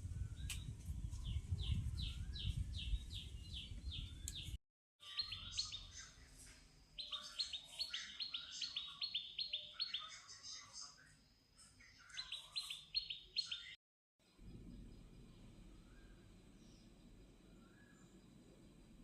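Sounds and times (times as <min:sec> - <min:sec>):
low rumble: 0:14.2 - 0:19.0.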